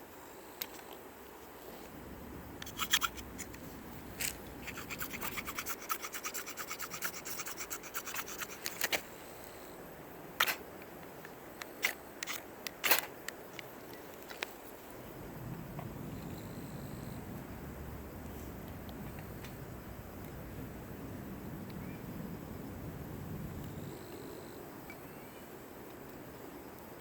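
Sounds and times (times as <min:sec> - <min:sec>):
rapid scraping strokes: 0:01.9 - 0:09.1.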